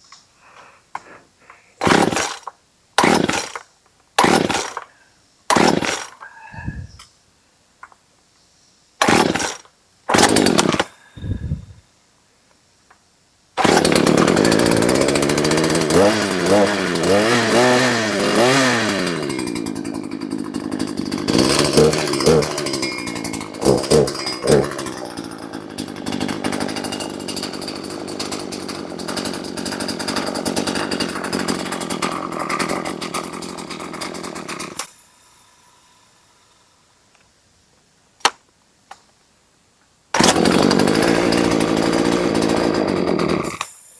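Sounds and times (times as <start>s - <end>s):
chainsaw engine revving: 1.8s - 3.6s, 4.2s - 4.9s, 5.5s - 6.9s, 9.0s - 11.7s, 13.6s - 34.9s, 40.2s - 43.7s.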